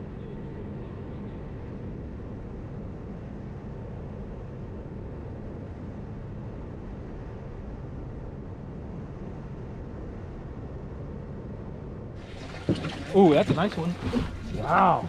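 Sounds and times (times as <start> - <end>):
boat motor rumbling: 12.2 - 15.0.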